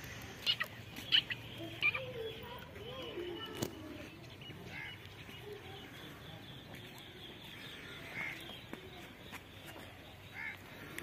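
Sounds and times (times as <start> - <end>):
short bird calls: 3.1 - 11.0.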